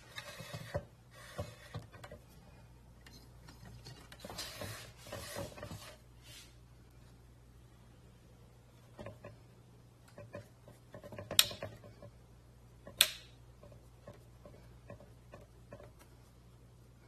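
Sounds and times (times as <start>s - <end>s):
objects being handled: 0.0s - 6.6s
faint low hum: 0.0s - 17.0s.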